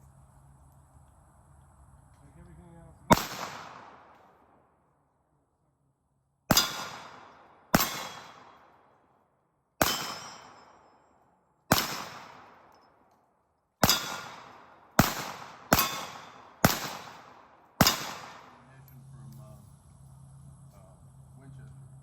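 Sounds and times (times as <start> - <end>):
pistol shots with echo: 3.1 - 4.7, 6.5 - 9.2, 9.8 - 11.1, 11.7 - 13.1, 13.7 - 18.8.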